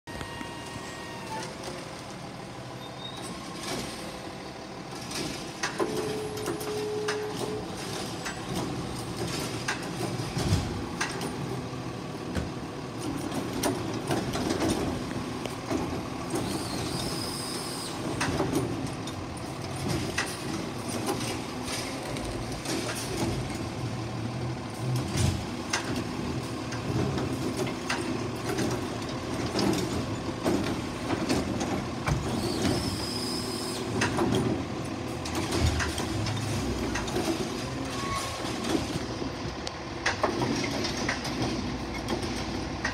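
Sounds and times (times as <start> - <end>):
brief tone: 0.1 - 1.6, 2.8 - 3.3, 5.9 - 7.7, 37.9 - 38.4
garbage truck engine: 0.1 - 42.9
knocks and clanks: 4.9 - 11.6, 12.3 - 16.6, 24.9 - 32.9, 33.9 - 39.4, 40.0 - 42.9.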